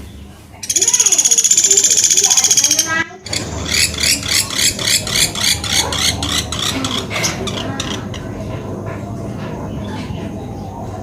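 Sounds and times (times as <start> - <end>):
woodpecker call: 0.6 - 8.2.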